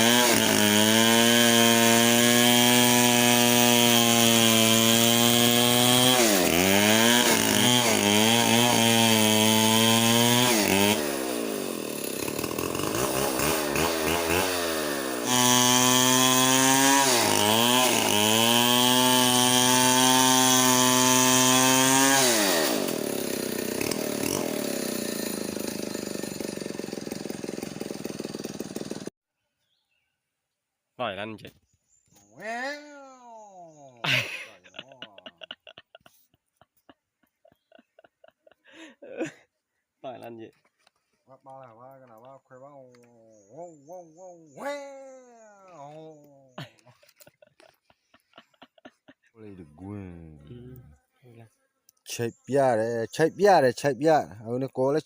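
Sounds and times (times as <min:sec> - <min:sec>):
chainsaw cutting wood: 0:00.0 - 0:29.2, 0:33.7 - 0:39.4, 0:42.0 - 0:49.2.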